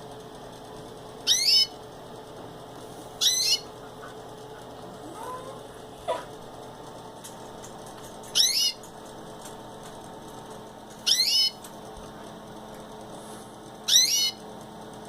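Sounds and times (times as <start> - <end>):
canary calling: 1.2 - 1.8, 3.2 - 6.3, 8.2 - 8.9, 11.0 - 11.6, 13.9 - 14.4.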